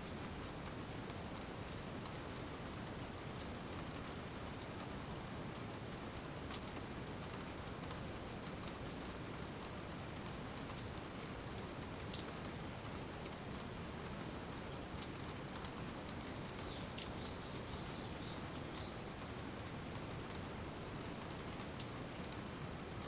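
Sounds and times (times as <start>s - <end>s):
steady rain: 0.0s - 23.0s
faint high chirps: 16.6s - 19.0s.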